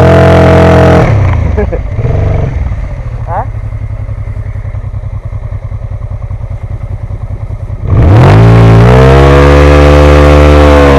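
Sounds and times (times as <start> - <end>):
motorcycle engine revving hard: 0.0 - 3.5, 7.8 - 10.9
motorcycle engine idling: 1.4 - 8.0.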